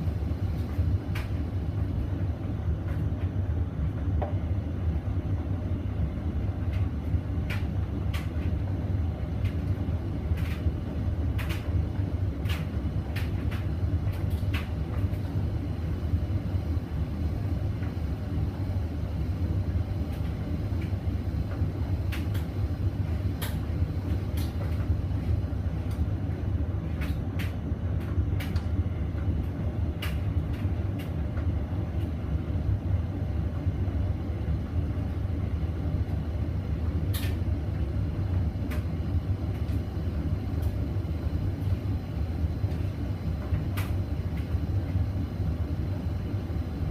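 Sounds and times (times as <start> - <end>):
washing machine spinning: 0.0 - 46.9.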